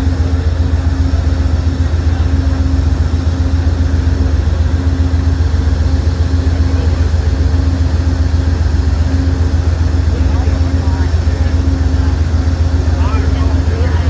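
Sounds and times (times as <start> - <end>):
diesel locomotive idling: 0.0 - 14.0.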